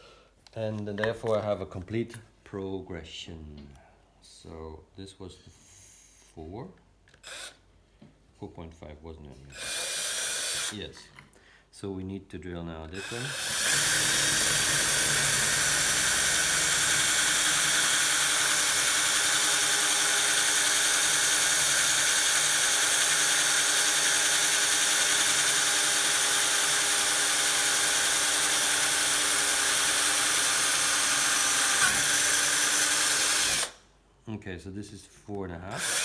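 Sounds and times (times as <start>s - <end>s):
electric drill whining: 9.6s - 10.8s, 13.0s - 33.8s, 35.7s - 36.0s.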